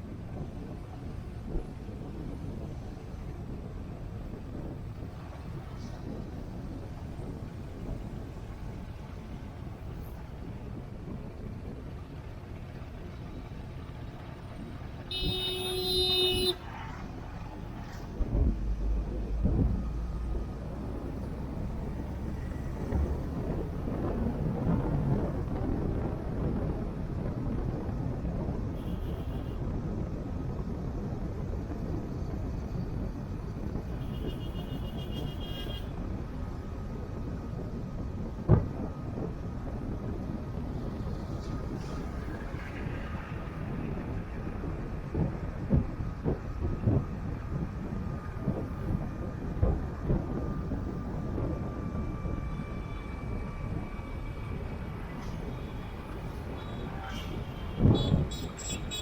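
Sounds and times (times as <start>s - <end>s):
car engine and tyre noise: 0.0s - 59.0s
road traffic noise: 0.0s - 59.0s
vehicle horn: 15.1s - 16.7s, 28.7s - 29.6s, 33.9s - 35.9s, 56.5s - 59.0s.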